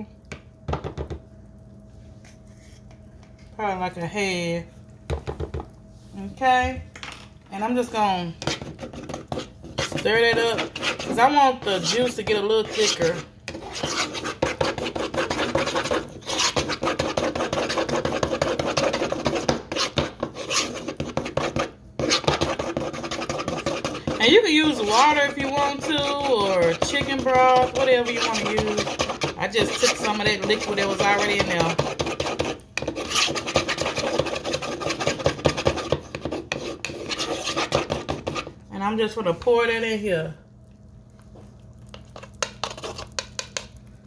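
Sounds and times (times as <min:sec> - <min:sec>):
metal spoon scraping plastic bowl: 0:08.4 - 0:38.5, 0:42.1 - 0:43.6.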